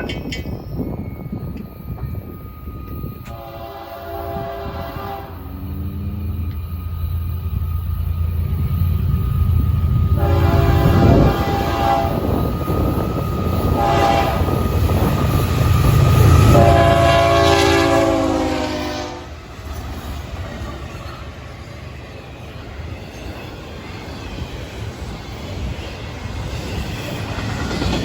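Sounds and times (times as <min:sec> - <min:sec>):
locomotive air horn blasts: 0:03.3 - 0:06.6, 0:10.2 - 0:12.2, 0:13.7 - 0:14.5, 0:16.3 - 0:19.4
diesel engine rumble: 0:05.2 - 0:10.1.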